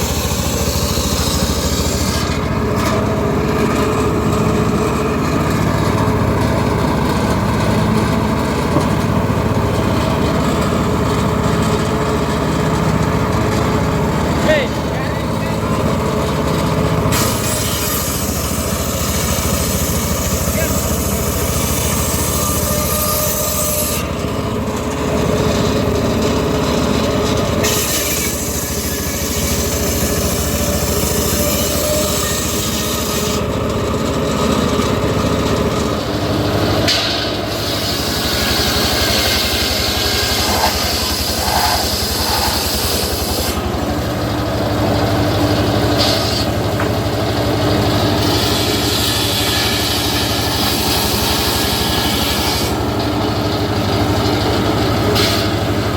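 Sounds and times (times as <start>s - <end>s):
saw blade cutting logs: 0.0s - 55.9s
sawmill engine droning: 0.0s - 55.9s.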